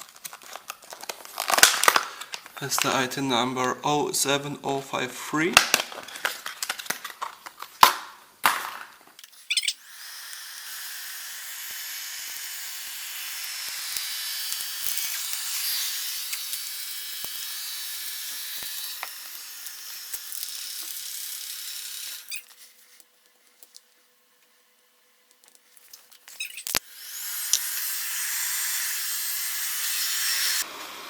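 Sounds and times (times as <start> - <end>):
robot vacuum whirring: 9.2 - 22.6, 26.2 - 31.0.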